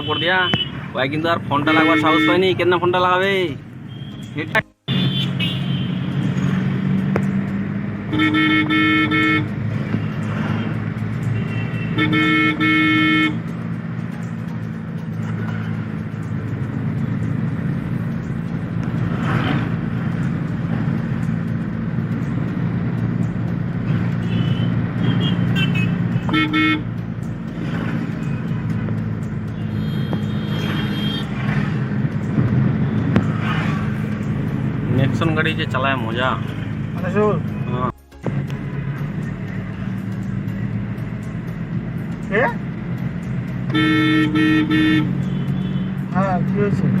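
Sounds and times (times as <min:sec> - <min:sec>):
car horn honking: 0:00.0 - 0:02.7, 0:03.8 - 0:06.3, 0:08.0 - 0:10.1, 0:11.3 - 0:13.5, 0:24.2 - 0:27.0, 0:29.6 - 0:31.5, 0:43.6 - 0:46.4
car engine and road noise: 0:00.0 - 0:47.0.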